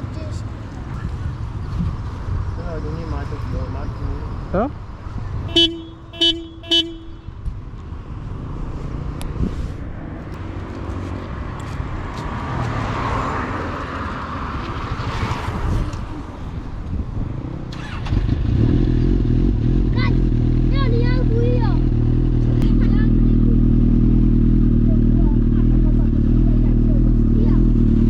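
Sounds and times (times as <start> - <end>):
road rumble and wind rush: 0.0 - 28.0
vehicle horn tooting: 5.5 - 7.4.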